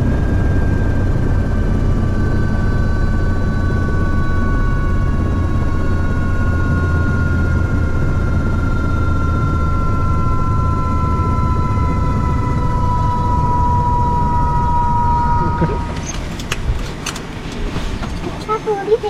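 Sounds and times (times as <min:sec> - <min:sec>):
helicopter rotor drone: 0:00.0 - 0:19.0
turbine whine: 0:00.0 - 0:19.0.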